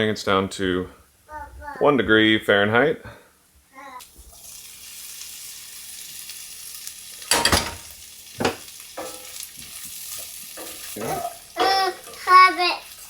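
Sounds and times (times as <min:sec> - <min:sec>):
food sizzling in a pan: 0:03.7 - 0:13.0.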